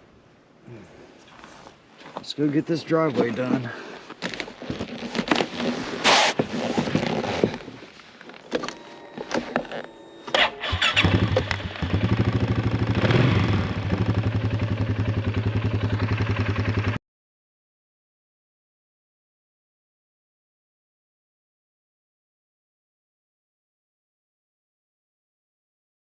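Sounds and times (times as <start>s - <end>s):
small engine running: 9.9s - 17.0s.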